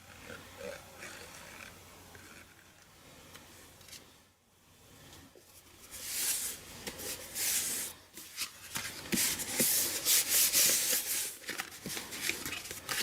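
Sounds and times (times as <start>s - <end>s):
paper rustling: 5.8s - 13.0s.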